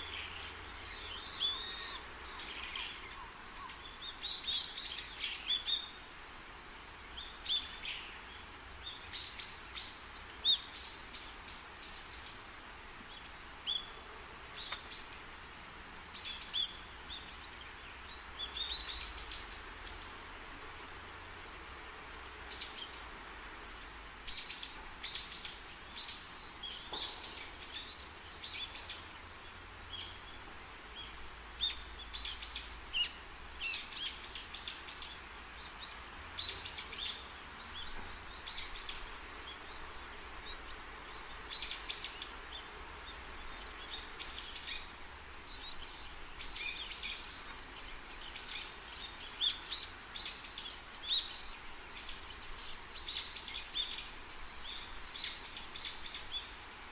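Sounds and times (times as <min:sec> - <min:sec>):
birds chirping: 0:00.0 - 0:06.0, 0:22.4 - 0:56.9
steady background hiss: 0:00.0 - 0:56.9.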